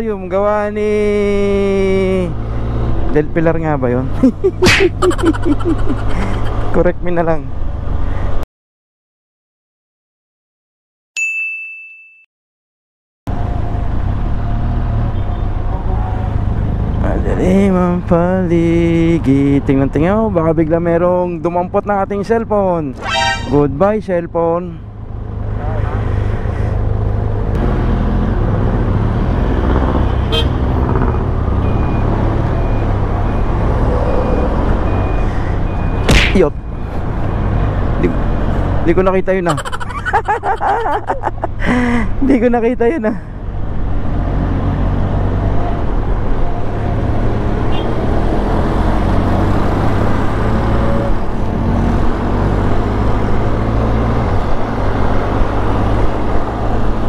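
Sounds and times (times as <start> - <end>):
sharp beep: 23.0 - 23.6.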